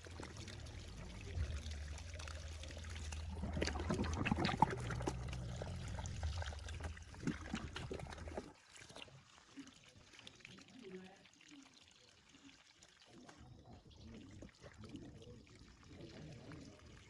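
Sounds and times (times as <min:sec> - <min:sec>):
low motor hum: 0:00.0 - 0:07.2
water trickling and pouring: 0:00.0 - 0:17.0.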